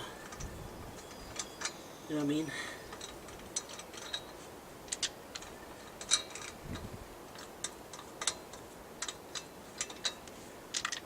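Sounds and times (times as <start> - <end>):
light metal clicks and clinks: 0.0 - 11.0.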